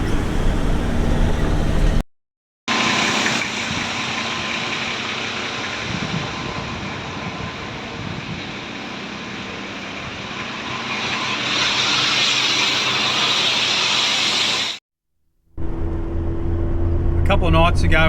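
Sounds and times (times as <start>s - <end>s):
truck engine running: 0.0s - 2.0s, 2.7s - 14.6s.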